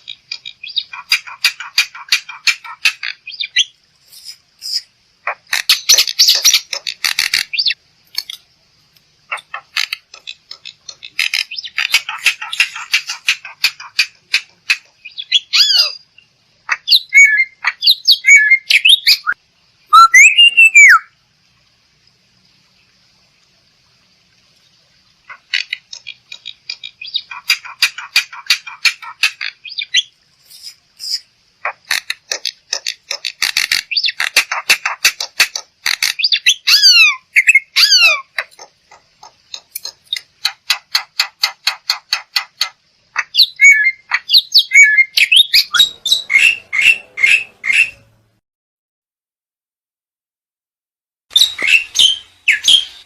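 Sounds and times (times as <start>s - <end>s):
myna calling harsh whistles: 17.0s - 21.1s, 43.4s - 48.1s, 51.3s - 53.0s.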